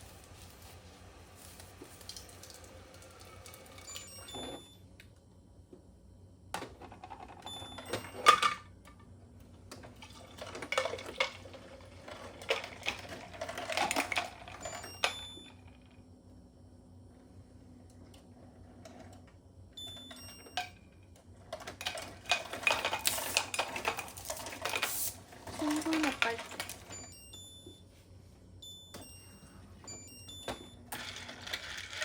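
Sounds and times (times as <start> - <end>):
high ringing tones: 19.8 - 20.9, 26.9 - 28.0, 28.6 - 31.0.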